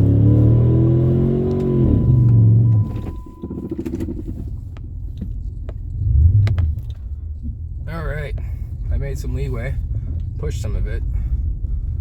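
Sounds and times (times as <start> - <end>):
car engine straining in snow: 0.0 - 11.5.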